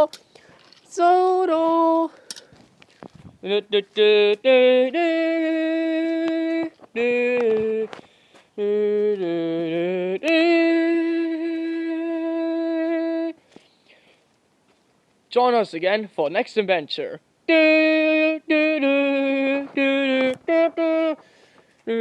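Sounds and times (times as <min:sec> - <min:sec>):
person humming long notes: 0:03.4 - 0:08.0, 0:08.6 - 0:13.4, 0:17.5 - 0:22.0.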